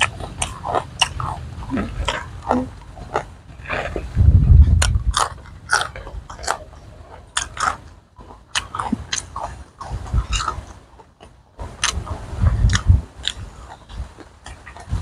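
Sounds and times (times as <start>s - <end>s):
crunchy biting and chewing: 0.0s - 15.0s
dull low thumps: 1.4s - 6.4s, 11.6s - 14.2s, 14.8s - 15.0s.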